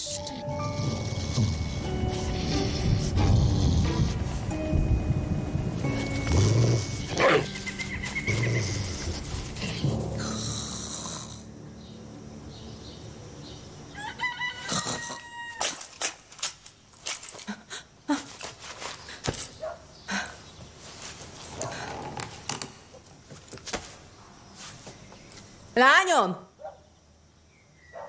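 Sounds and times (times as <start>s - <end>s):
rooster crowing: 13.9s - 15.8s.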